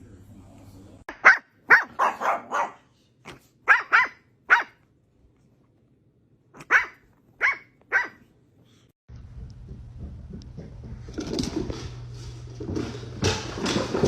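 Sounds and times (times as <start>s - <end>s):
dog barking: 1.1s - 2.9s, 3.6s - 4.8s, 6.6s - 8.3s.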